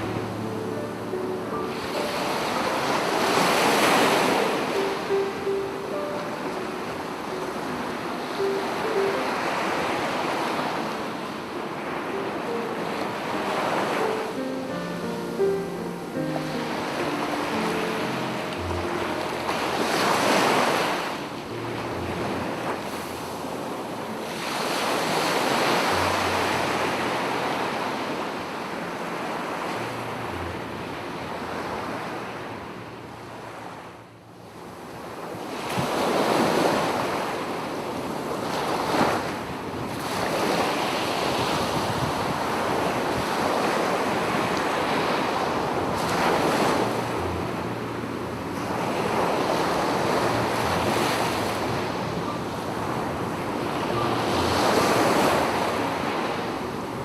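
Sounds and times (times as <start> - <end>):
ocean waves breaking: 0.0 - 57.0
wind buffeting microphone: 35.0 - 47.3.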